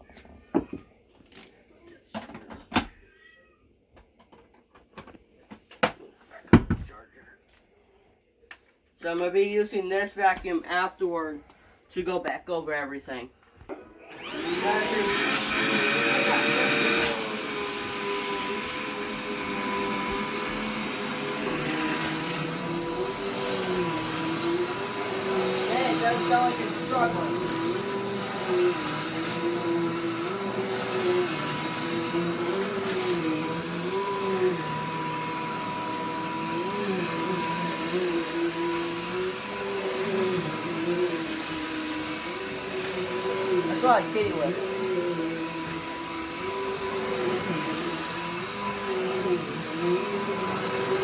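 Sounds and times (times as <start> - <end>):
vacuum cleaner running: 14.1 - 51.0.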